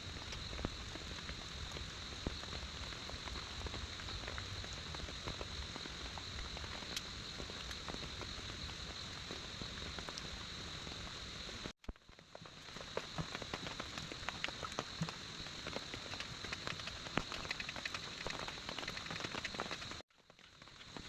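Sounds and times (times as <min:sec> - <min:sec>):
rain drops tapping: 0:11.8 - 0:21.0.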